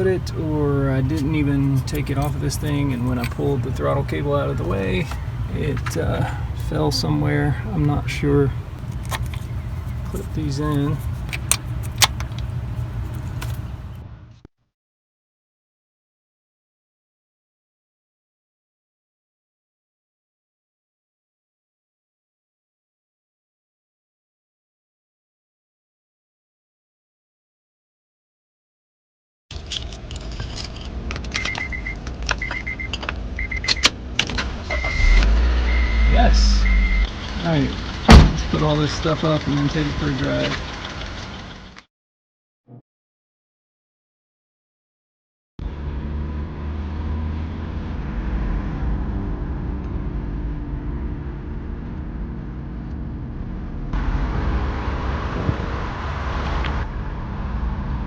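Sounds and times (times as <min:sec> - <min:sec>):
car engine cranking: 0:00.0 - 0:14.0
car engine and road rumble: 0:00.0 - 0:14.4, 0:29.5 - 0:41.8, 0:45.6 - 0:58.0
car warning chime beeping: 0:31.4 - 0:33.9, 0:34.7 - 0:37.1.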